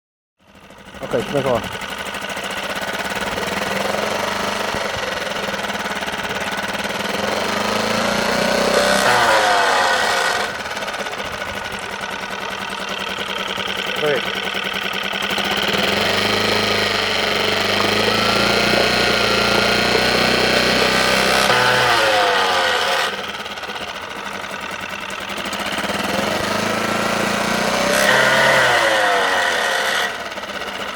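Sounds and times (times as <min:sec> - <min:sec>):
outboard motor running: 0:00.4 - 0:30.9.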